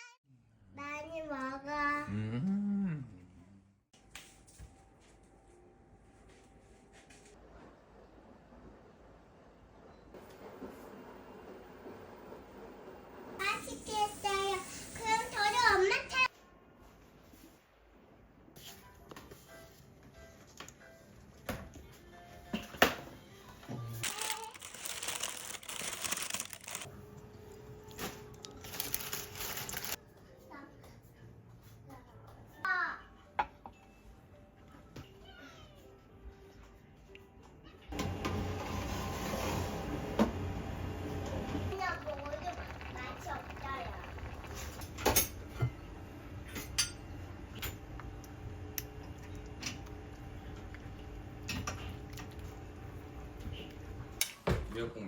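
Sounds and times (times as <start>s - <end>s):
thin material crinkling: 28.4s - 30.0s
cutlery clinking against plates: 46.5s - 47.8s.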